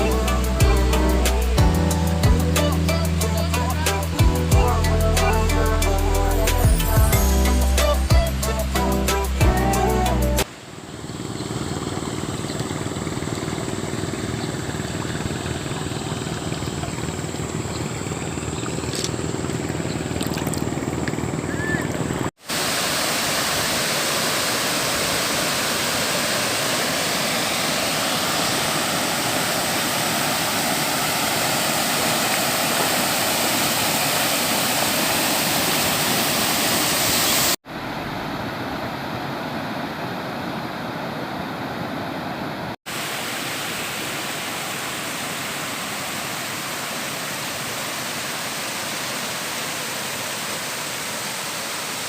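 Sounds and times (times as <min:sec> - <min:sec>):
river water rushing over rocks: 0:21.5 - 0:52.0.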